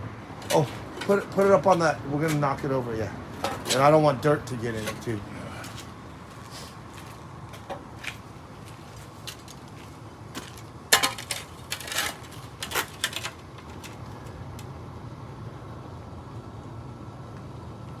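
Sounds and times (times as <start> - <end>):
steady low hum: 0.0 - 18.0
objects knocking and clinking: 0.4 - 2.5, 3.3 - 3.9.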